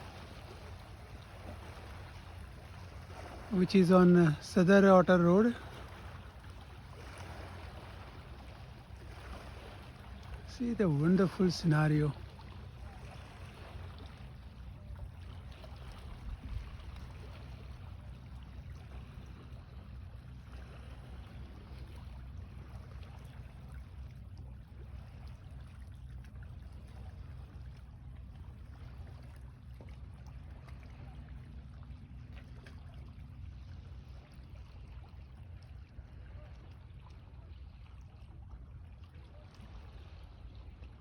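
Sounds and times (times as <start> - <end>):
faint wash of water: 0.0 - 41.0
wind rumble on microphone: 15.6 - 17.6.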